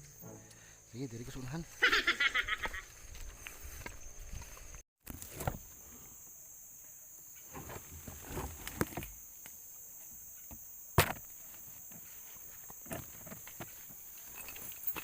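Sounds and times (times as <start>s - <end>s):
footsteps through undergrowth: 1.2s - 5.7s
high-pitched insect drone: 9.2s - 15.0s.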